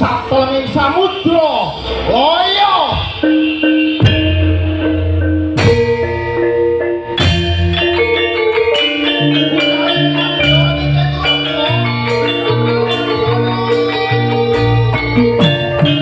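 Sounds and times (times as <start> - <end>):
struck mallet instruments melody: 2.8 - 16.0
low bass line: 3.1 - 16.0.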